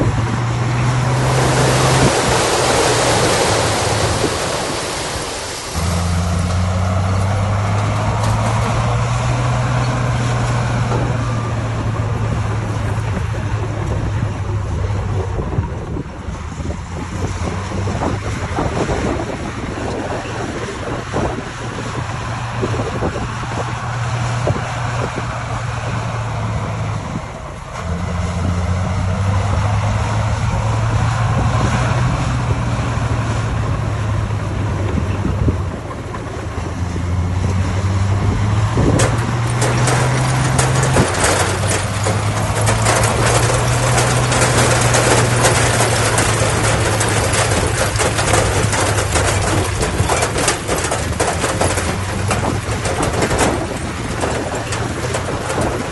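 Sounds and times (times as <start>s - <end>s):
heavy machinery diesel engine: 0.0s - 55.9s
loud rattling clatter: 34.8s - 55.9s.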